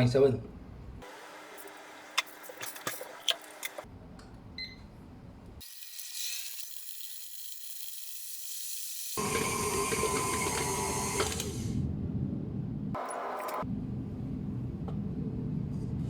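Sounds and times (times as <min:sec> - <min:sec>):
electric mixer motor running: 0:09.2 - 0:11.7.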